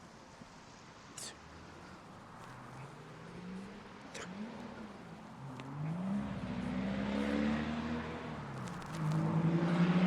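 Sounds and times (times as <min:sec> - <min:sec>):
vehicle engine passing: 0:05.7 - 0:08.4, 0:09.0 - 0:10.0.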